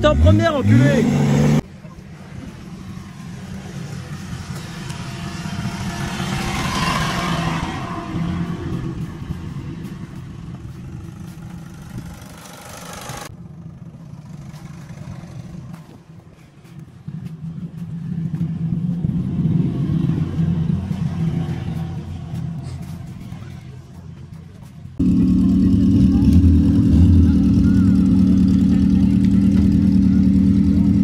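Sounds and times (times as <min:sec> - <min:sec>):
car engine running: 0:25.0 - 0:31.0.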